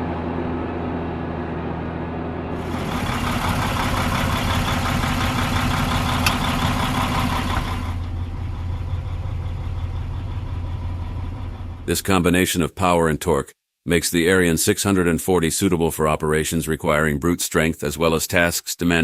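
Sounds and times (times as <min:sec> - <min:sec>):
tractor diesel engine running: 0:00.0 - 0:12.2.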